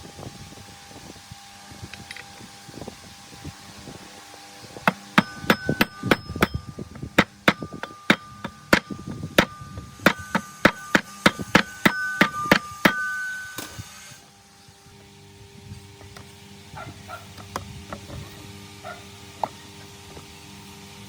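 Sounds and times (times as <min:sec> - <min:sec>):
hammer striking metal: 0:04.9 - 0:13.9.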